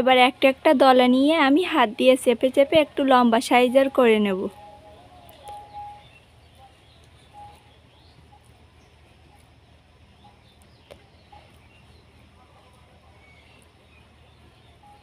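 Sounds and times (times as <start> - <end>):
low steady hum: 0.0 - 15.0
faint bird chirps: 4.4 - 15.0.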